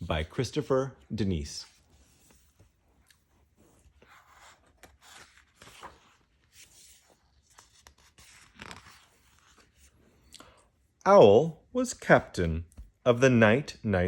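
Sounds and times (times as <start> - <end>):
paper pages rustling: 0.1 - 10.3.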